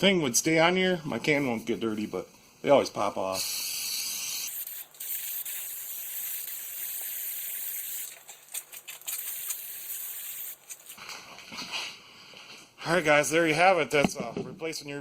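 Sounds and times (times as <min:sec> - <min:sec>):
aerosol can spraying: 0:03.4 - 0:11.0.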